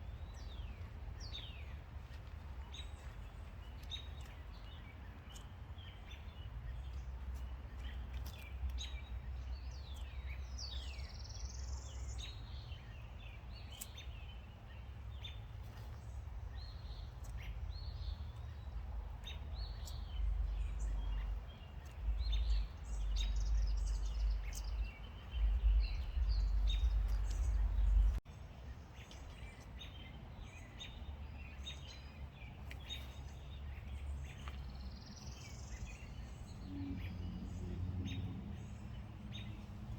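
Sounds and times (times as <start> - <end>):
wild birds chirping: 0.0 - 39.9
low rumble: 16.5 - 28.2.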